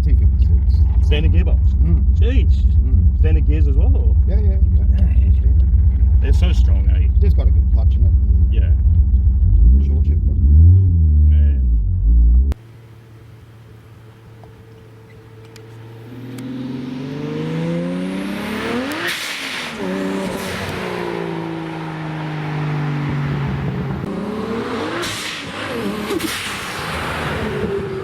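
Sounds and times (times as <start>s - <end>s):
car engine revving hard: 15.8s - 28.0s.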